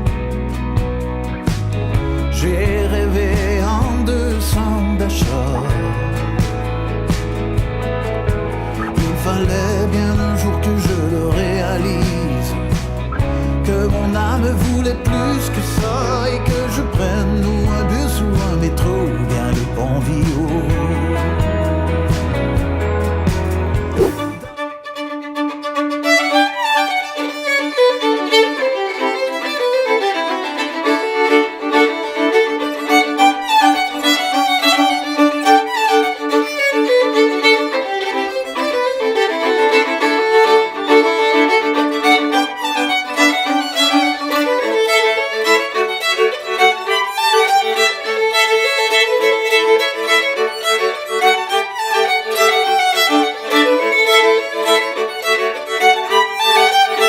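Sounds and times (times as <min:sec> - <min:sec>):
lively violin tune: 0:07.8 - 0:15.4, 0:23.6 - 0:57.0.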